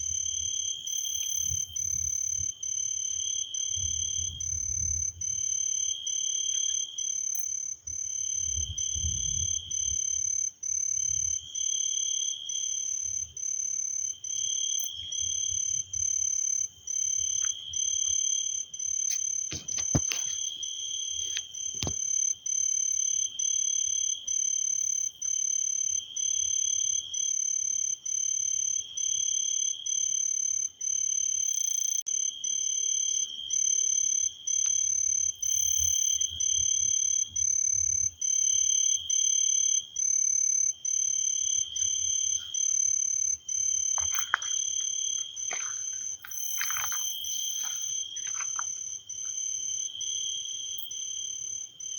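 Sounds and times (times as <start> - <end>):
frogs trilling: 41.4 - 50.9.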